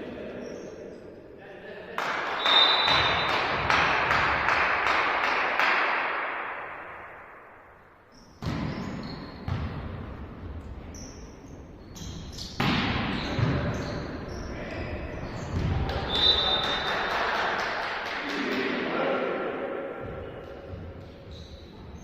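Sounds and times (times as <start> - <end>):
rhythmic clapping: 2.0 - 6.4, 15.9 - 18.8
sneakers squeaking on floor: 2.4 - 3.7, 8.1 - 16.9, 20.0 - 22.0
volleyball thumping: 12.6 - 13.8
crowd cheering: 15.8 - 18.8.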